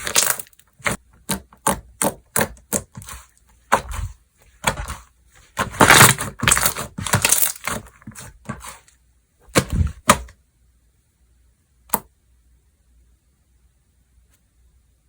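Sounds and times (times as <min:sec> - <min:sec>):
slime crackling and popping: 0:00.0 - 0:01.0, 0:05.6 - 0:08.7.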